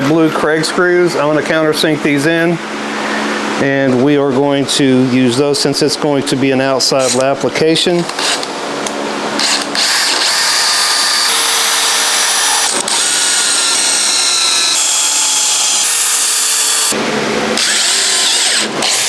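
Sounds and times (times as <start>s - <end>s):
power drill driving screws: 8.1s - 8.5s, 9.4s - 17.0s, 17.6s - 19.0s.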